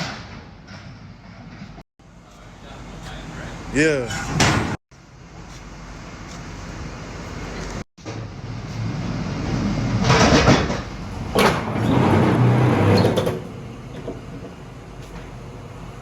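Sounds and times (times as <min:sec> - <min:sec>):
truck engine humming: 0:10.9 - 0:16.0.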